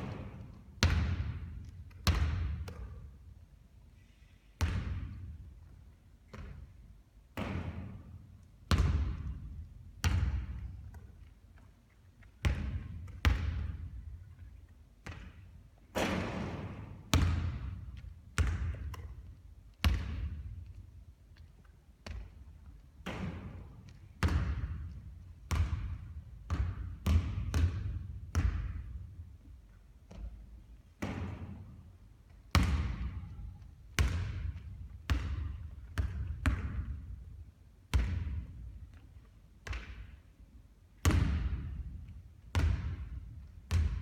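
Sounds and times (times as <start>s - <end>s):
basketball bouncing on court: 0.0s - 3.3s, 4.6s - 11.2s, 12.4s - 14.2s, 15.0s - 20.8s, 22.0s - 29.2s, 30.1s - 31.8s, 32.5s - 37.3s, 37.9s - 39.0s, 39.6s - 40.2s, 41.0s - 44.0s.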